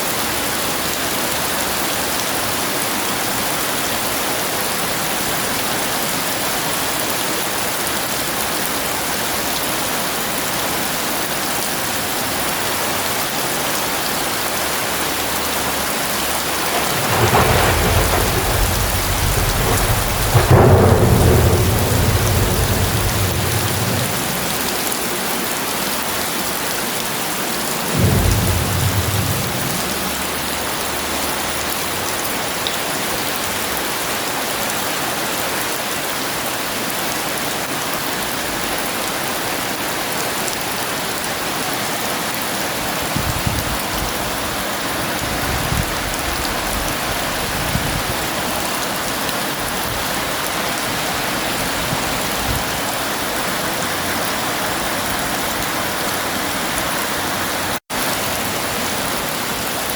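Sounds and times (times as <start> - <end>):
heavy rain falling: 0.0 - 59.9
thunder rumbling: 12.9 - 34.1.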